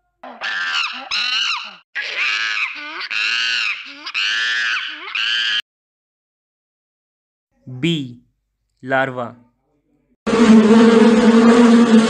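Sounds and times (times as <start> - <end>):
monkey screaming: 0.2 - 5.6.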